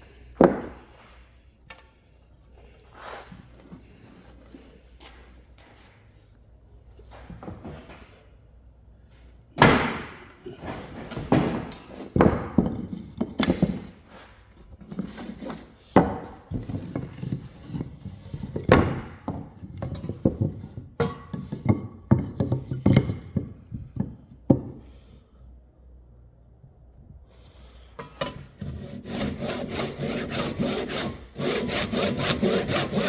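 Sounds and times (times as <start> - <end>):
wooden workpieces clattering: 9.6 - 24.8.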